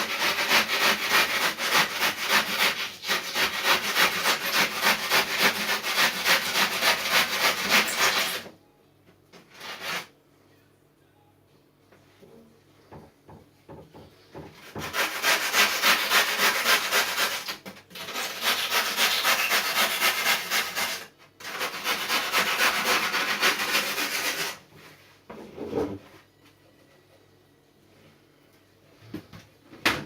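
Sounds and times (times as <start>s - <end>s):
sandpaper scratching on foam: 0.0s - 8.4s, 9.5s - 10.1s, 14.8s - 24.6s.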